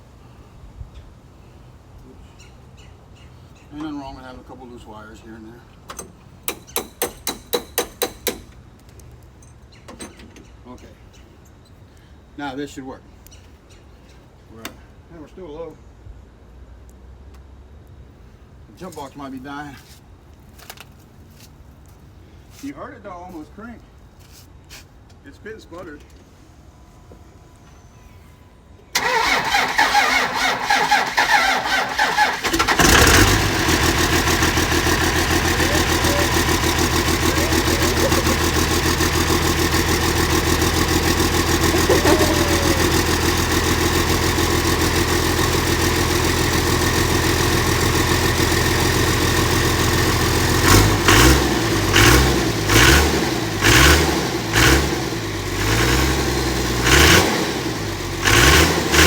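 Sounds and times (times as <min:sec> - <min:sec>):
diesel engine cranking on starter: 0:28.9 - 0:59.0
engine revving in blips: 0:29.0 - 0:45.9, 0:49.4 - 0:59.0
diesel engine idling: 0:29.0 - 0:59.0.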